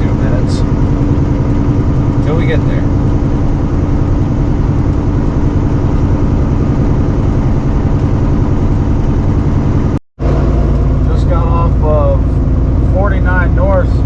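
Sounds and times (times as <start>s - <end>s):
truck diesel engine droning: 0.0s - 14.0s.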